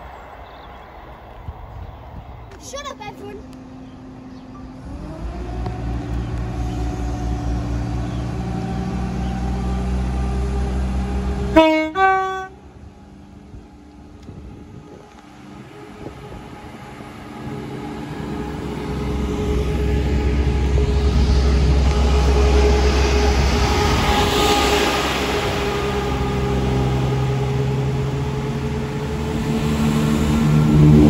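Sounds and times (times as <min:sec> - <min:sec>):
train rumbling: 0:00.0 - 0:31.0
train horn toots: 0:11.4 - 0:12.7, 0:14.9 - 0:29.5.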